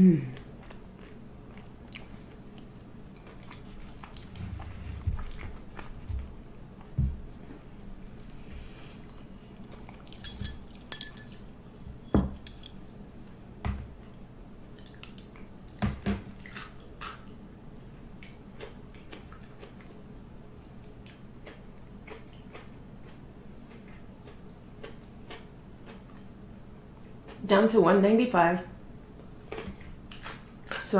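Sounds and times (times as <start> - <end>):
chewing: 0.4 - 7.4, 9.0 - 10.8, 16.4 - 17.4, 18.2 - 26.3, 29.2 - 30.9
utensils clinking against dishes: 10.1 - 12.8.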